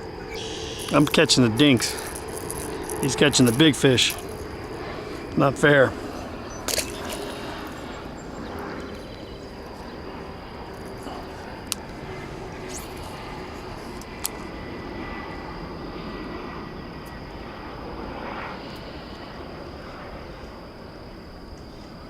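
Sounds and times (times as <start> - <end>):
distant engine rumble: 0.0 - 14.9
faint high whine: 0.0 - 22.0.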